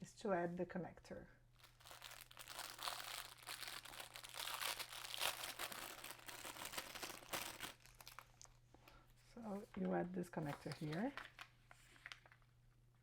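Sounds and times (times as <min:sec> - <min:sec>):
packaging crinkling: 0:01.6 - 0:09.0, 0:10.4 - 0:12.5.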